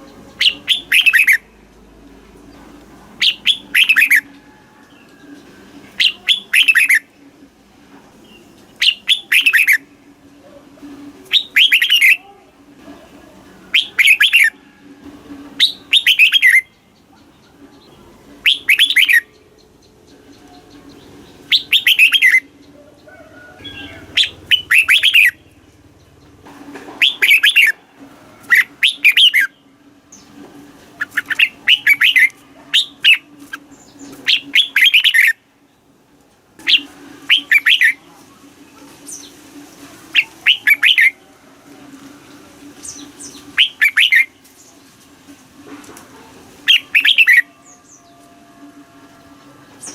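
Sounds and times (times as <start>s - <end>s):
bird singing whistled phrases: 0.4s - 1.5s, 3.2s - 4.3s, 6.0s - 7.0s, 8.8s - 9.8s, 11.3s - 12.2s, 13.7s - 14.6s, 15.6s - 16.8s, 18.4s - 19.4s, 21.5s - 22.5s, 23.6s - 25.4s, 31.0s - 33.3s, 34.2s - 35.4s, 36.6s - 38.0s, 40.2s - 41.2s, 42.9s - 44.3s, 46.7s - 48.2s.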